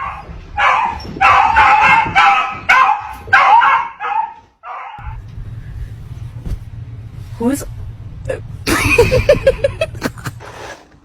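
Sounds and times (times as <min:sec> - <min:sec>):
dog yipping and barking: 0:00.0 - 0:05.0
steady low hum: 0:05.0 - 0:10.5.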